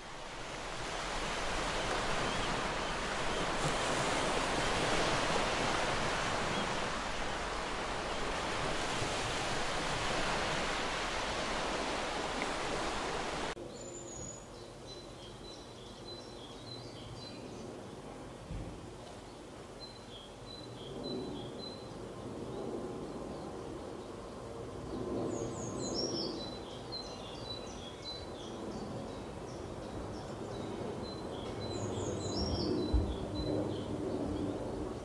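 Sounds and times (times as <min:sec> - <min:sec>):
surf breaking on rocks: 0:00.0 - 0:13.6.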